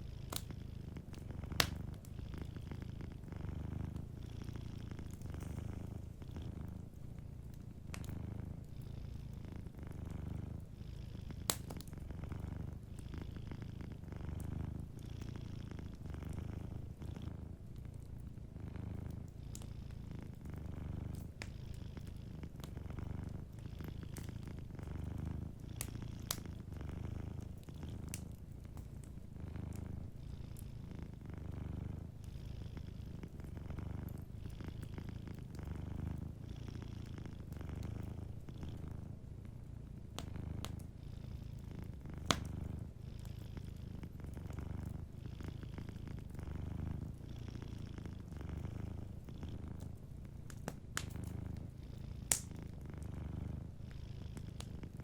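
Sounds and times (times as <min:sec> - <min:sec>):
cat purring: 0:00.0 - 0:55.0
wood fire crackling: 0:00.2 - 0:08.8, 0:11.4 - 0:13.3, 0:13.9 - 0:30.2, 0:33.1 - 0:36.4, 0:37.0 - 0:41.0, 0:41.6 - 0:43.0, 0:43.7 - 0:45.2, 0:48.2 - 0:53.6.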